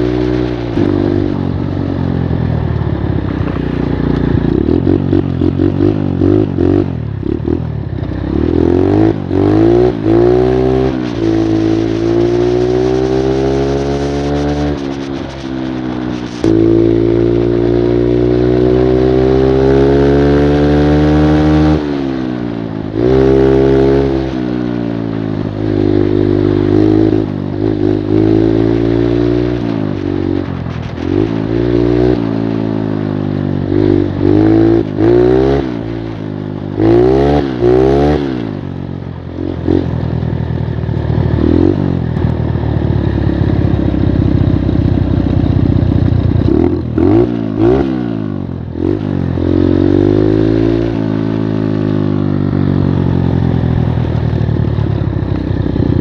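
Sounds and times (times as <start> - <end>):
moped engine revving: 0.0 - 56.0.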